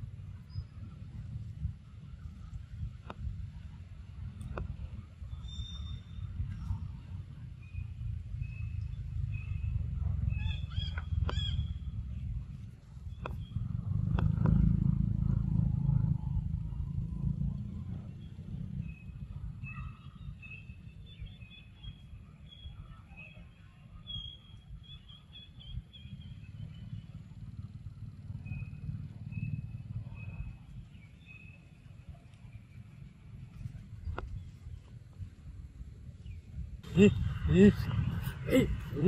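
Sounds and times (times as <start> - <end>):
wind rumble on microphone: 0.0 - 39.0
birds chirping: 5.1 - 14.6, 18.0 - 34.8, 36.2 - 39.0.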